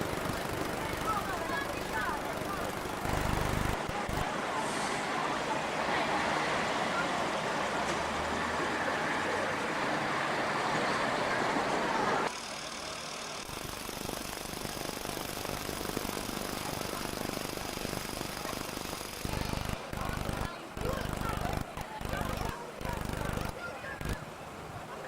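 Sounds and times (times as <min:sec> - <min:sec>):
heavy machinery engine running: 0:00.0 - 0:04.4, 0:11.4 - 0:24.2.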